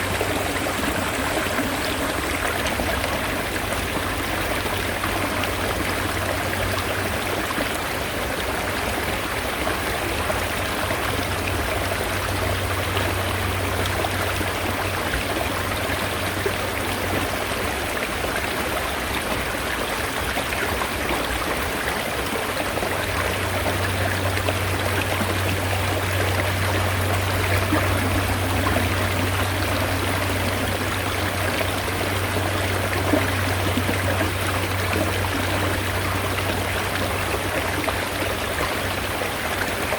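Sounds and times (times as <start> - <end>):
stream rushing over rocks: 0.0 - 39.9
low steady hum: 22.4 - 39.6.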